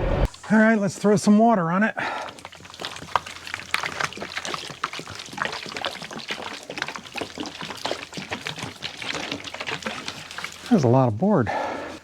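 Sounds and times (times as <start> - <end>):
water splashing on log: 2.0 - 12.0.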